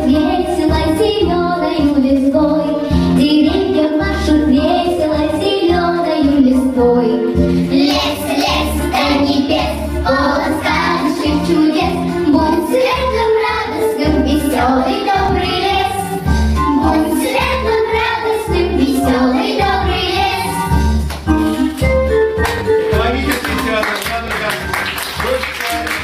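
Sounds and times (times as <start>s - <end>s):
instrumental accompaniment with bass beat: 0.0s - 26.0s
children singing: 3.3s - 20.8s.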